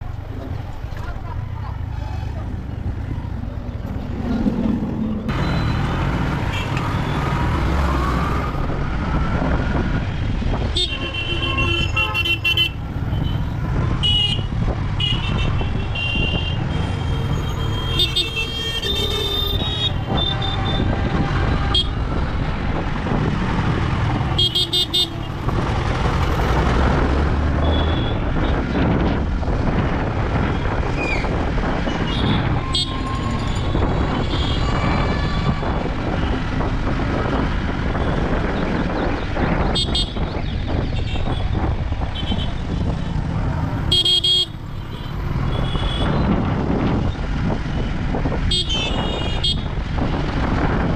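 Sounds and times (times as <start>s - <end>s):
road traffic noise: 0.0s - 50.9s
vehicle horns honking: 5.4s - 7.3s, 10.7s - 22.0s, 24.3s - 25.3s, 27.6s - 28.6s, 32.0s - 36.3s, 39.7s - 40.2s, 43.8s - 46.2s, 48.5s - 49.7s.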